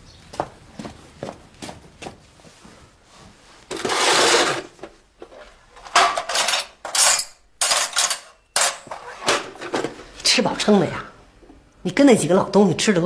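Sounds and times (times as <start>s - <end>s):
hard objects clattering: 3.7s - 10.2s.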